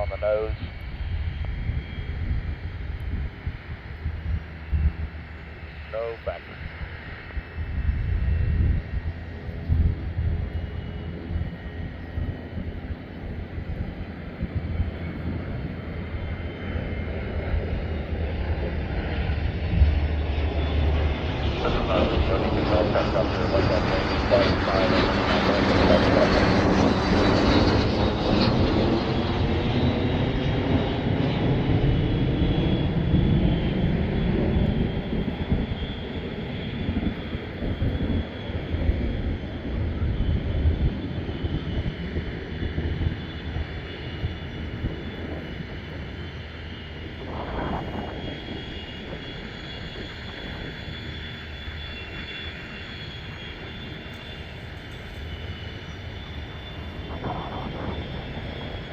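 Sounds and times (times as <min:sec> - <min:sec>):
jet engines rumbling and whining: 0:00.0 - 0:58.9.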